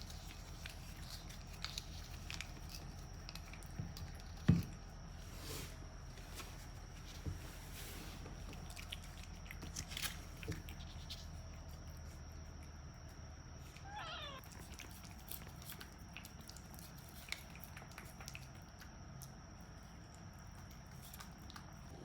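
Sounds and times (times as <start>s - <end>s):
cat meowing: 13.7s - 14.5s.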